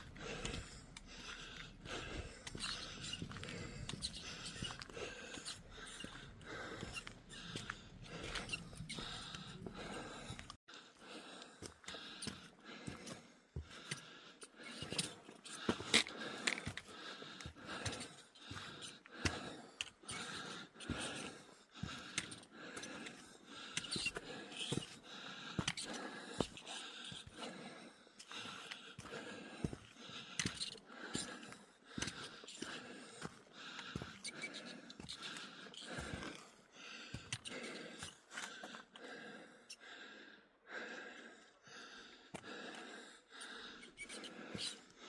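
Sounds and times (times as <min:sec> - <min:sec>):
footsteps crunching on trail: 0:00.0 - 0:10.5, 0:24.0 - 0:38.7
footsteps: 0:00.0 - 0:10.6
person breathing: 0:00.0 - 0:45.0.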